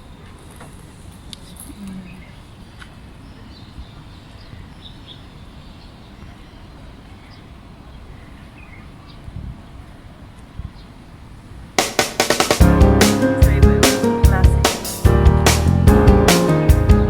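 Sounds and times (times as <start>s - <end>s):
steady low rumble: 12.6s - 17.0s.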